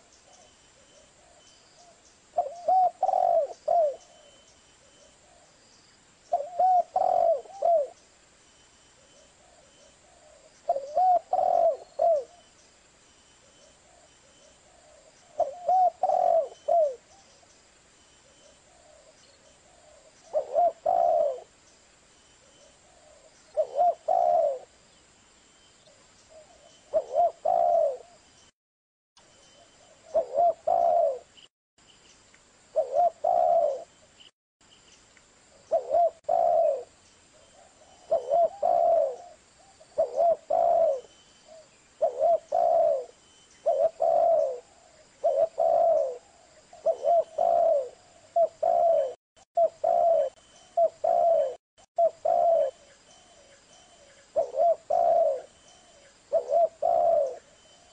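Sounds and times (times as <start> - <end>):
dove cooing: 0.0 - 5.6, 6.3 - 8.0, 9.4 - 12.5, 13.9 - 17.3, 18.5 - 21.6, 22.5 - 24.8, 26.3 - 28.2, 29.8 - 31.3, 32.7 - 33.9, 35.7 - 57.9.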